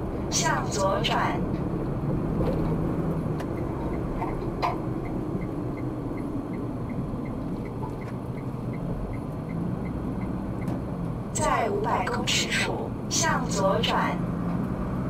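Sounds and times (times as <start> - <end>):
road and engine noise: 0.0 - 15.0
turn signal ticking: 1.1 - 11.4.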